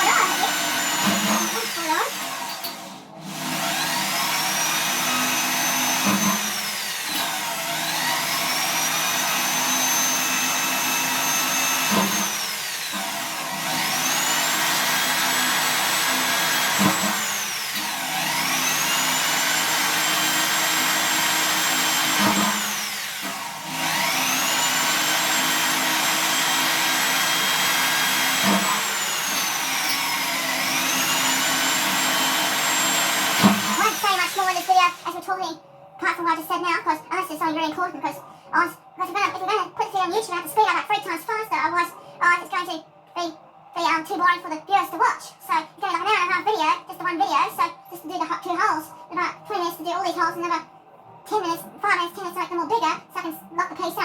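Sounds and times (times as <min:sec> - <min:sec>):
electric drill drilling steel: 0:00.0 - 0:35.2.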